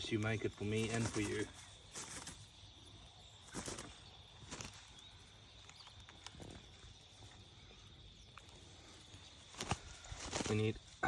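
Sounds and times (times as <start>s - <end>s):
bird wings flapping against branches: 0.0s - 2.8s, 3.4s - 7.3s, 8.4s - 11.0s.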